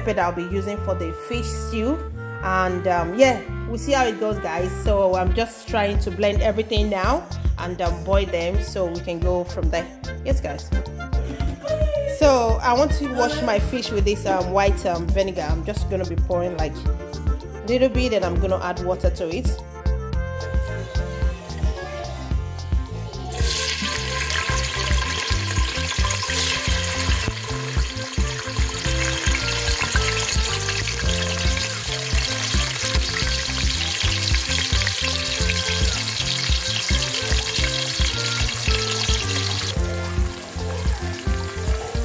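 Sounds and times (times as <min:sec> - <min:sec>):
background music: 0:00.0 - 0:42.0
onions sizzling in hot oil: 0:23.3 - 0:42.0.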